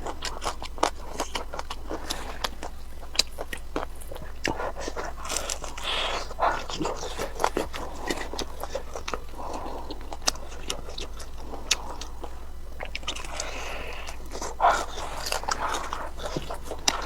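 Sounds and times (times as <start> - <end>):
chewing food: 0.0 - 17.0
wet mouth noises: 0.0 - 17.0.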